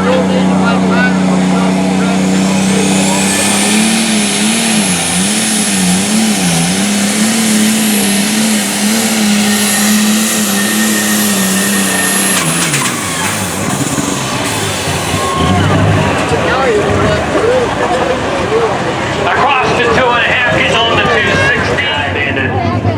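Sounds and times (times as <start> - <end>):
tractor engine running flat out: 0.0 - 22.9
turbocharger whine: 0.0 - 22.9.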